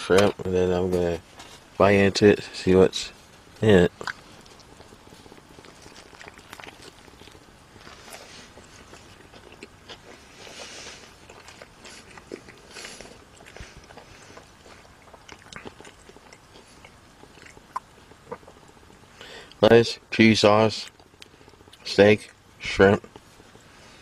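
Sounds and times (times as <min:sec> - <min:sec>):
person chewing food: 0:03.1 - 0:19.6, 0:20.8 - 0:24.0
mouth clicks: 0:03.8 - 0:19.6.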